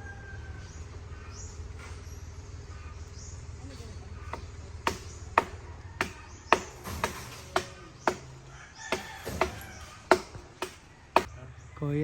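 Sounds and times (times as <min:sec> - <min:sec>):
blade chopping into wood: 0:04.4 - 0:11.3.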